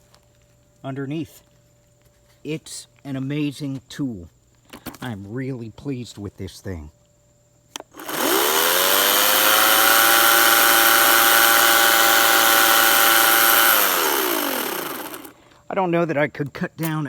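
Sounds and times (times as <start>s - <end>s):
electric chainsaw whining: 7.8s - 15.4s.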